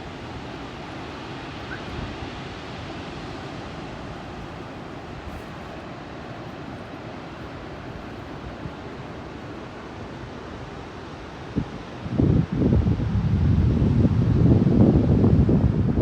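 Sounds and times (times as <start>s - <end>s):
rushing outdoor noise: 0.0s - 16.0s
wind buffeting microphone: 11.5s - 16.0s.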